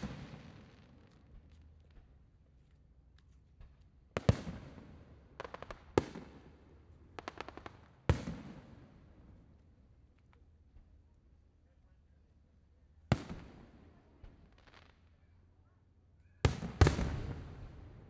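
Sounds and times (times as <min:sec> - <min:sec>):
fireworks booms: 0:00.0 - 0:01.2, 0:13.1 - 0:15.0, 0:16.5 - 0:18.0
small fireworks cracks: 0:00.0 - 0:10.9, 0:13.1 - 0:15.6, 0:16.4 - 0:18.0.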